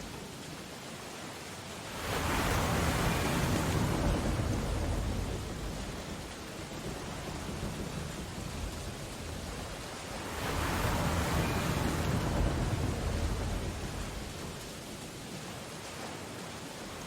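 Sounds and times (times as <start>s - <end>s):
ocean surf: 0.0s - 17.0s
wave breaking: 10.0s - 14.6s.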